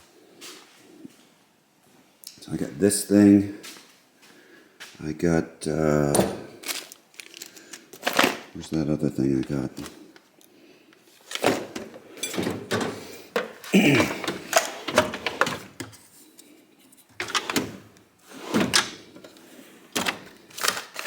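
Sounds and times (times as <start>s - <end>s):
tools clattering and scraping: 11.2s - 16.2s.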